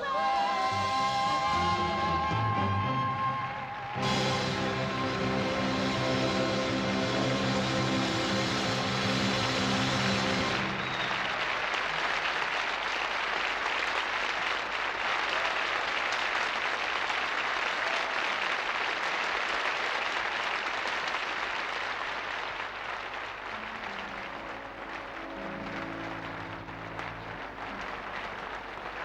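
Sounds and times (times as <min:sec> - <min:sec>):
band playing: 0:00.0 - 0:11.8, 0:23.5 - 0:29.0
audience applauding: 0:00.0 - 0:29.0.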